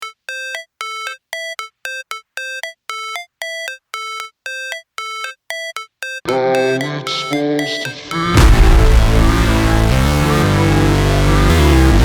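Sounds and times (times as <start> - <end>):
electronic ringtone beeps: 0.0 - 8.8.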